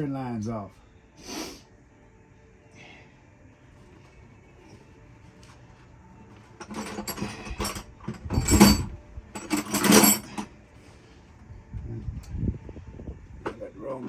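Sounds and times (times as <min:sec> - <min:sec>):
metal hand tools clattering: 0:06.6 - 0:10.5.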